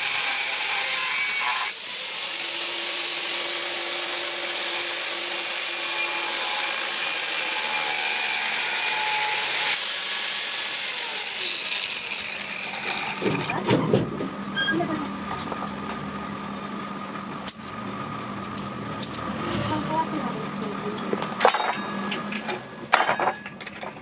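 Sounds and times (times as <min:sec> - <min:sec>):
power tool grinding steel: 0:00.0 - 0:13.6.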